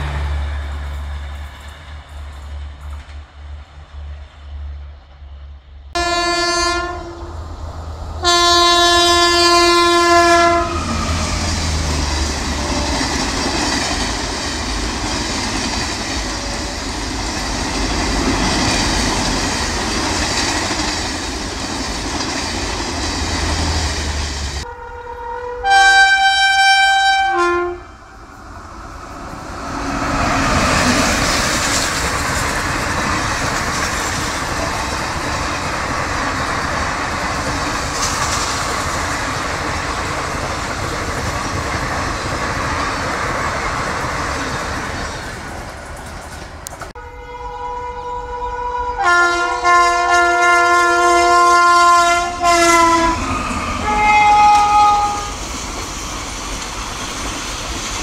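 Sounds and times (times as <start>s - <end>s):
train coaches rushing past: 0.0s - 24.9s, 25.7s - 47.2s, 49.0s - 58.0s
locomotive horn blasts: 6.0s - 7.4s, 8.2s - 11.4s, 12.4s - 13.2s, 24.6s - 28.2s, 47.0s - 53.2s, 53.8s - 55.3s.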